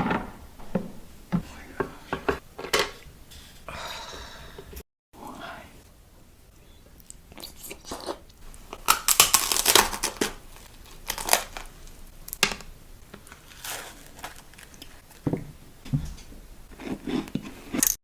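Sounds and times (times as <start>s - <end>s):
plastic packaging crinkling and tearing: 8.6s - 12.4s, 13.2s - 15.0s.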